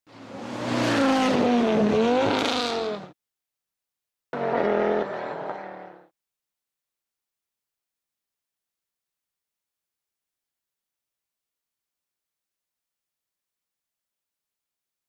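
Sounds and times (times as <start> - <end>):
car engine sound effect: 0.1 - 3.2, 4.4 - 6.1.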